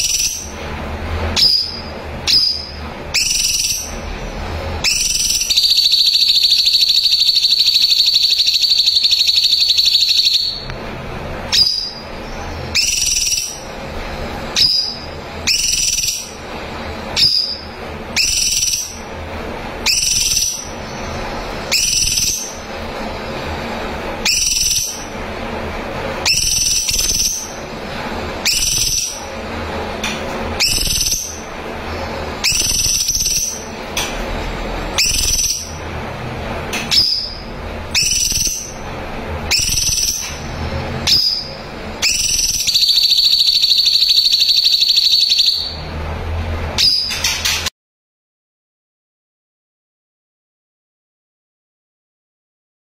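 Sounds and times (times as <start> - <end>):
bird singing trills and whistles: 0.0 - 0.6, 1.4 - 4.0, 4.8 - 10.7, 11.5 - 13.7, 14.5 - 16.4, 17.2 - 19.1, 19.8 - 22.7, 24.2 - 25.1, 26.2 - 27.7, 28.4 - 29.3, 30.6 - 31.5, 32.4 - 33.7, 35.0 - 35.8, 36.9 - 38.8, 39.5 - 40.4, 41.0 - 45.8, 46.8 - 47.6.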